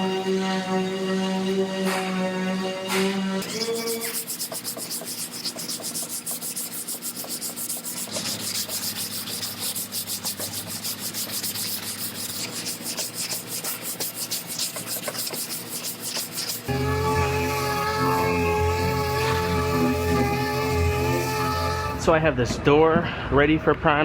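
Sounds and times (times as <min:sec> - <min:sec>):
sandpaper sanding metal: 0:03.4 - 0:22.0.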